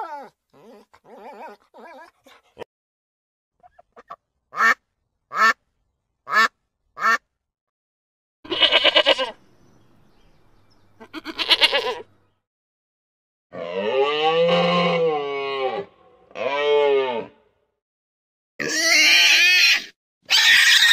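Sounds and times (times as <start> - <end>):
duck quacking: 3.6 - 5.6, 6.3 - 7.2
sheep bleating: 8.5 - 9.4, 11.0 - 12.2.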